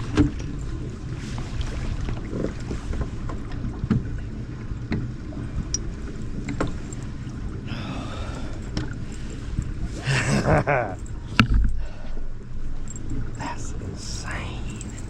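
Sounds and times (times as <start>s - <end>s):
low rumble of wind and water: 0.0s - 15.0s
knocks and clicks of gear: 0.1s - 0.6s, 5.7s - 7.2s, 11.0s - 11.8s.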